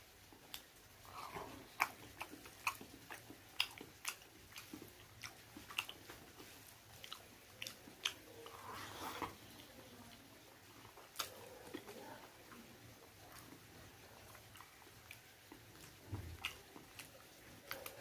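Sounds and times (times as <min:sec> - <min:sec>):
person chewing and biting meat: 0:00.4 - 0:09.4, 0:13.3 - 0:18.0.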